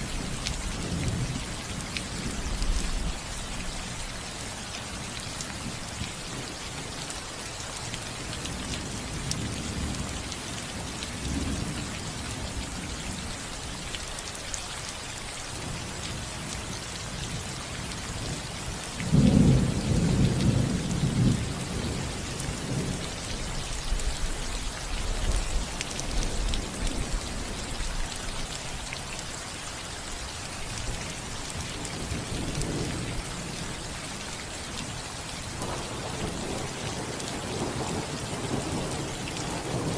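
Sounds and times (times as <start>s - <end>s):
rain falling on a roof: 0.0s - 39.9s
thunder rumbling: 19.1s - 23.1s.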